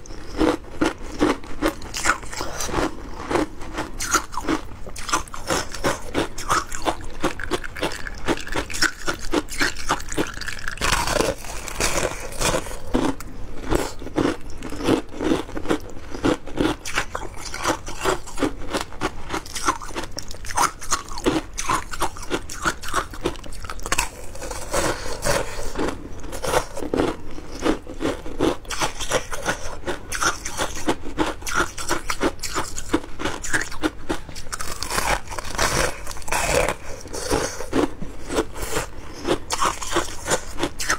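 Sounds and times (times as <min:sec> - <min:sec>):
crunching shaved ice in mouth: 0:00.0 - 0:40.9.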